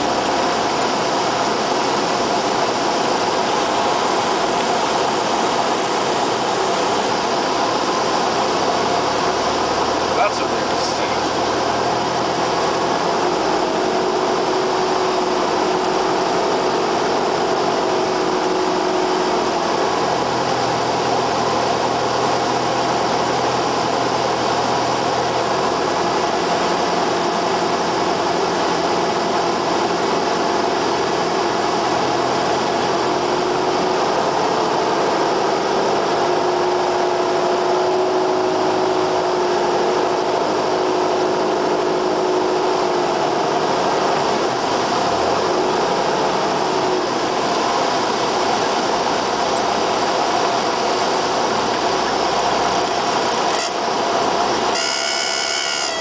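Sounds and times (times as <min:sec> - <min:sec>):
propeller plane engine drone: 0:00.0 - 0:56.0.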